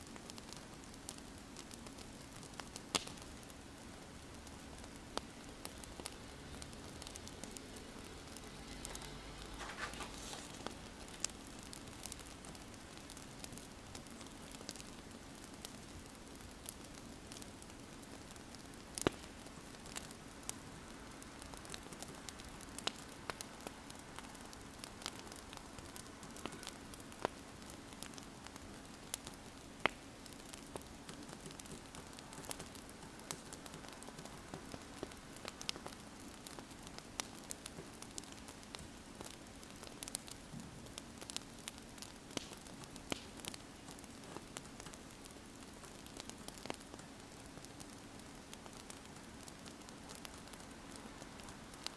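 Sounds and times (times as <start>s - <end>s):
wood fire crackling and popping: 0.0s - 51.9s
faint low hum: 3.4s - 14.1s
scratchy noise: 8.9s - 10.8s.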